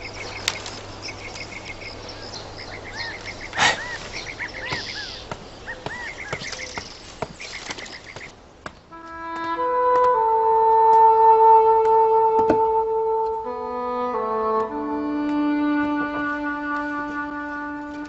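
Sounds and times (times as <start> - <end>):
small birds chirping: 0.0 - 8.9.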